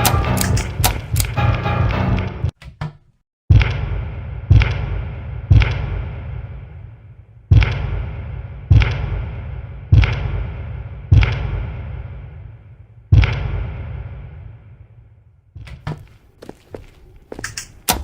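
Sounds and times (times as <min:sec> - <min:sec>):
heavy echoing thuds: 0:03.5 - 0:12.5, 0:13.1 - 0:16.3.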